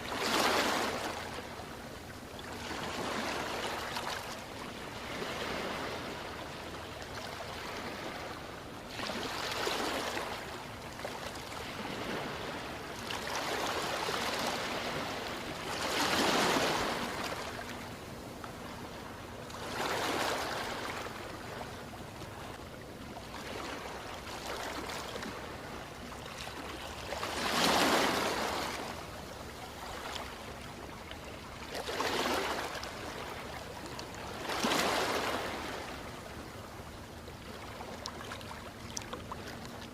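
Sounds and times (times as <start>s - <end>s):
ocean waves washing onto shore: 2.5s - 18.6s, 26.4s - 30.6s.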